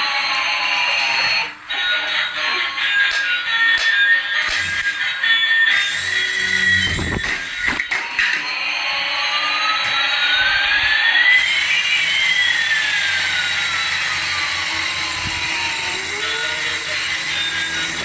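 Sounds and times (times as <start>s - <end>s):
toy helicopter motors whirring: 0.0s - 18.0s
gliding motor whines: 1.0s - 7.9s, 9.9s - 18.0s
rotor hiss: 5.7s - 7.9s, 11.3s - 18.0s.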